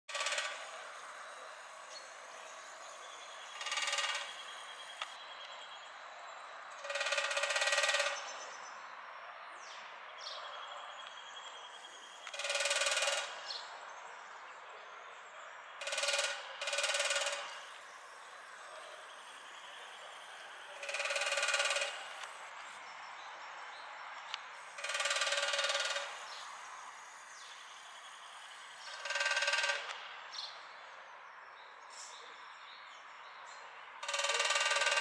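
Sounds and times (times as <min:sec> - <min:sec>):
woodpecker drumming on metal: 0:00.1 - 0:01.6, 0:03.2 - 0:05.0, 0:06.7 - 0:08.3, 0:12.2 - 0:13.6, 0:15.8 - 0:18.0, 0:20.6 - 0:22.4, 0:24.7 - 0:26.4, 0:27.6 - 0:30.0, 0:34.0 - 0:35.0.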